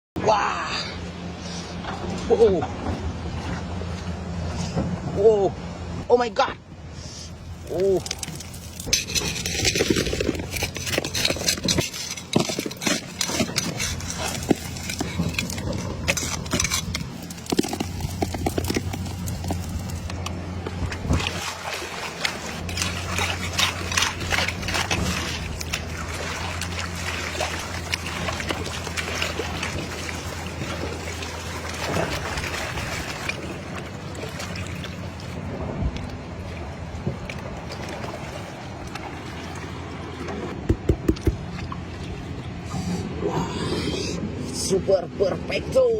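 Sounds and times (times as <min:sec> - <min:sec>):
low steady hum: 0:00.2 - 0:45.9
gravel rattling in pan: 0:07.7 - 0:20.4, 0:22.1 - 0:33.4
water sloshing in pan: 0:08.0 - 0:35.4.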